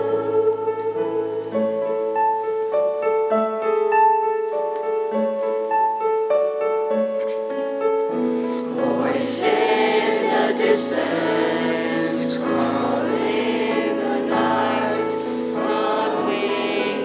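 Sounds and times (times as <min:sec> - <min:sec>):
choir singing: 0:00.0 - 0:02.2, 0:08.5 - 0:17.0
piano chords: 0:00.0 - 0:17.0.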